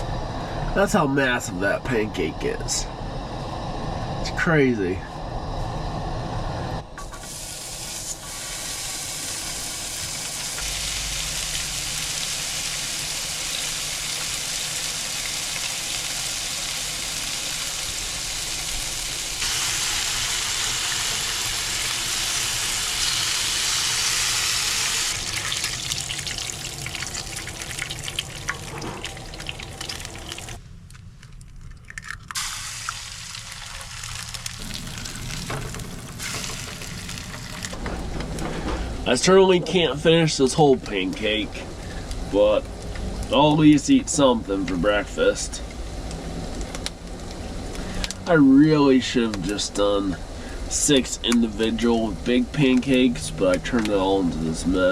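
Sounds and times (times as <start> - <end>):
food sizzling in a frying pan: 7.3 - 30.6, 32.4 - 37.7.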